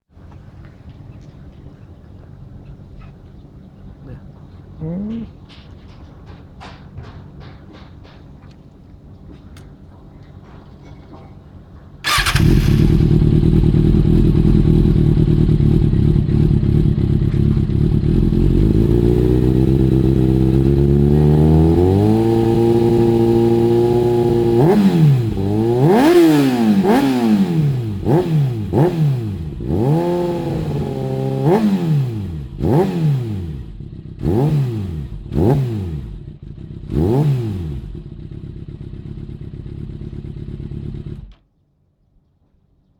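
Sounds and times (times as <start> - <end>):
motorcycle engine idling and revving: 4.2 - 41.5.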